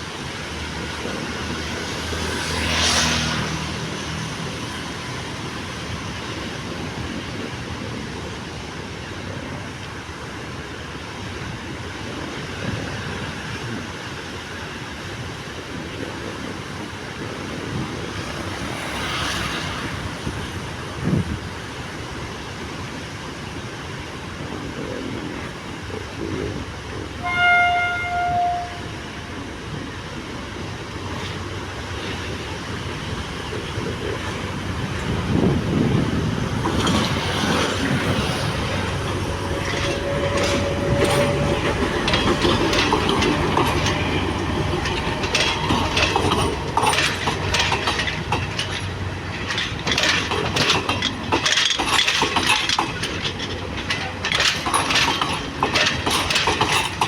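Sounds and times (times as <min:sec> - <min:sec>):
train rumble: 0:00.0 - 0:57.0
wheels clattering over rail joints: 0:24.4 - 0:57.0
train horn blast: 0:27.2 - 0:29.1.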